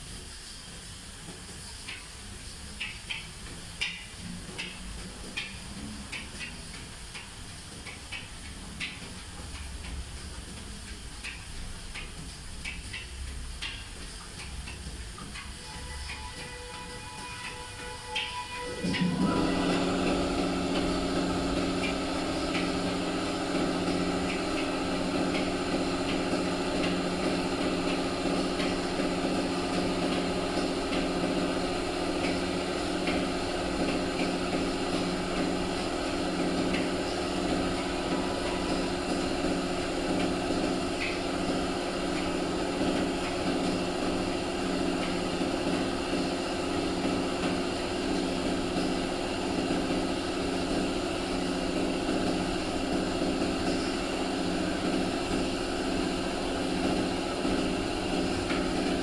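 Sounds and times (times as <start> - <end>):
machine motor running: 15.6 - 59.0.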